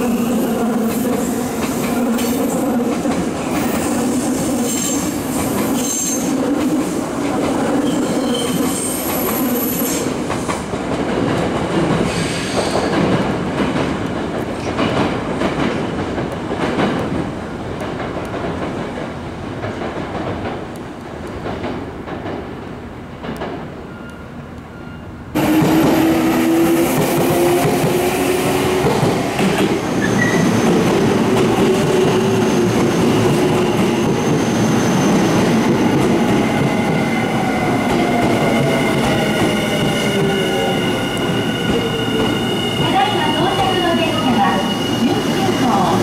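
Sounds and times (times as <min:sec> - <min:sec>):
train wheels rumbling on rails: 0:00.0 - 0:24.2, 0:25.3 - 0:46.0
high wheel squeal: 0:30.0 - 0:30.8, 0:38.4 - 0:46.0.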